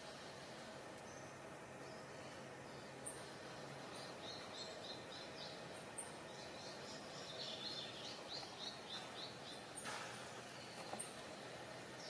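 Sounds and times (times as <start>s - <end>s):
forest ambience hiss: 0.0s - 12.0s
bird chirping: 1.0s - 9.9s.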